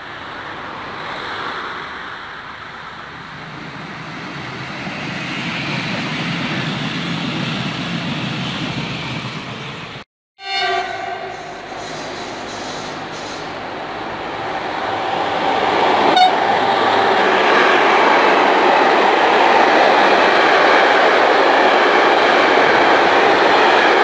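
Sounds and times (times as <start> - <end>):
train wheels rushing on rail: 0.2 - 10.0, 10.9 - 24.0
locomotive horn: 10.4 - 12.6, 16.0 - 17.1.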